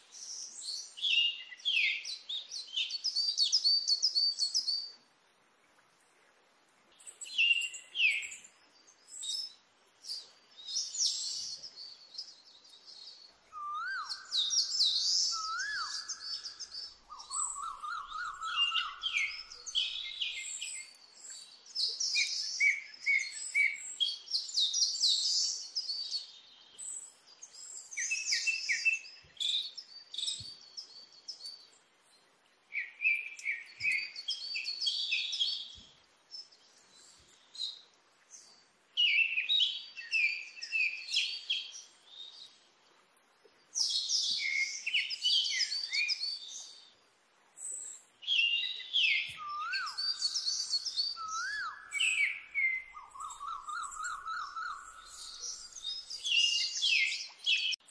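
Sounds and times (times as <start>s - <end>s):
songbirds chirping and singing: 7.0s - 42.7s, 43.6s - 47.0s, 47.6s - 57.9s
bird trill: 48.2s - 57.8s.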